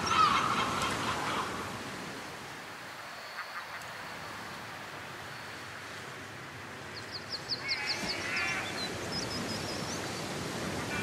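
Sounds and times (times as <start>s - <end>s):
outdoor background noise: 0.0s - 11.0s
harsh bird calls: 7.0s - 11.0s.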